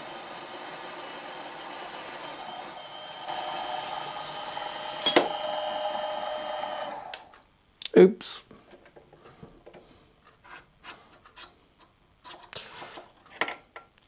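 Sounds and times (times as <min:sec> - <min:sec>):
whining tones: 0:00.0 - 0:07.4
machine tool reaming metal: 0:02.2 - 0:07.4.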